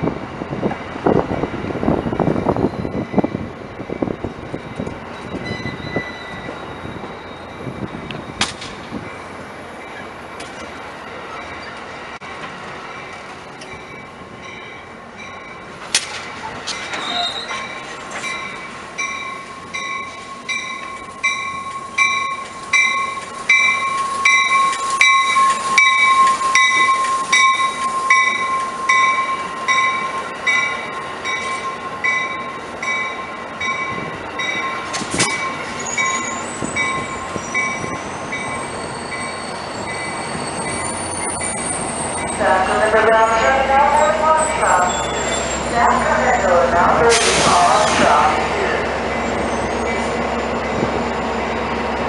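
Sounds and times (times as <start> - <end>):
train bell ringing: 2.4 - 10.2, 11.3 - 11.9, 12.9 - 15.8, 16.4 - 52.0
high brake squeal: 5.2 - 7.6, 16.4 - 17.8, 35.3 - 42.4, 44.0 - 45.8.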